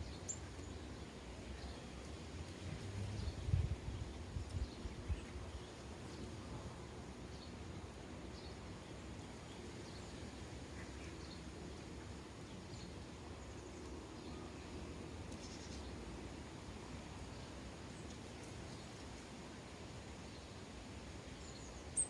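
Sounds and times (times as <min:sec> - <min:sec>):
sparrows chirping: 0:00.0 - 0:19.4, 0:21.3 - 0:22.0
steady low background noise: 0:00.0 - 0:22.0.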